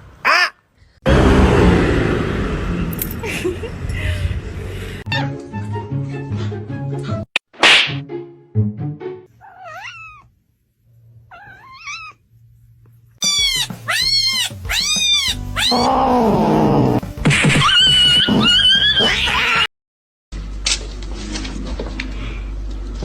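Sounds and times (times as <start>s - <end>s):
cat meowing: 9.4s - 10.3s, 11.3s - 12.2s, 13.2s - 16.3s
cat wavering yowl: 9.4s - 10.3s, 13.2s - 17.0s.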